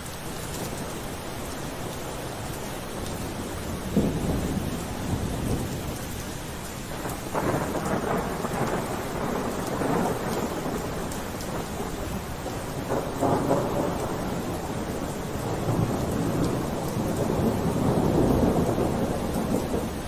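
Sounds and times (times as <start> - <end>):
steady rain falling: 0.0 - 20.0
thunder rumbling: 3.2 - 6.2, 6.9 - 20.0.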